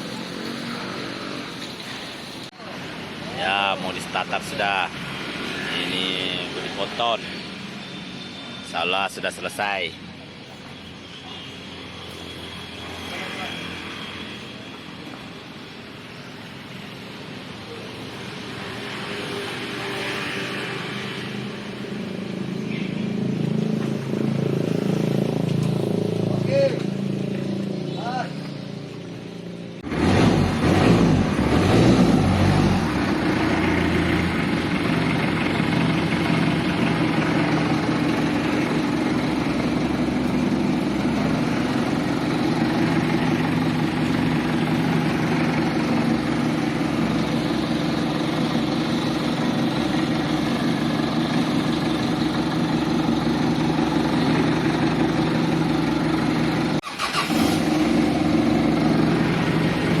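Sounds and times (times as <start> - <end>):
engine starting and running: 29.8 - 60.0.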